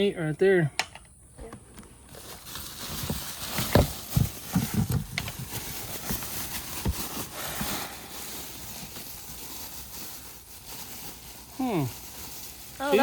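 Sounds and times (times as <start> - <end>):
wrapping rustling and crinkling: 2.1 - 13.0
objects knocking and bumping: 3.0 - 7.7.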